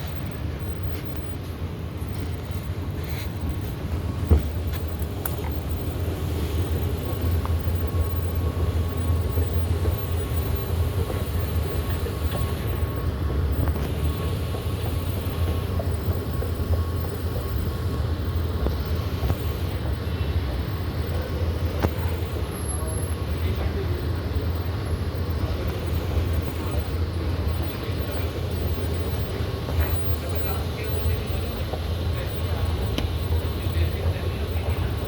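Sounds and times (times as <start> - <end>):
thin steady whine: 0.0 - 35.0
train low rumble: 0.0 - 35.0.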